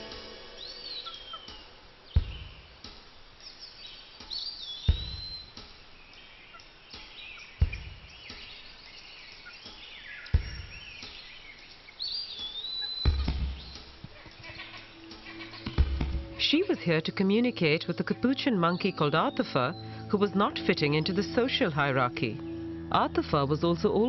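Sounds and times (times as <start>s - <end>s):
swooping whistled bird call: 0.0s - 2.6s, 4.3s - 5.6s, 7.0s - 13.9s
birds calling: 0.0s - 24.0s
light background hiss: 0.0s - 24.0s
dull thump: 2.1s - 3.0s, 4.9s - 5.8s, 7.6s - 8.5s, 10.3s - 10.9s, 13.0s - 14.2s, 15.6s - 16.4s.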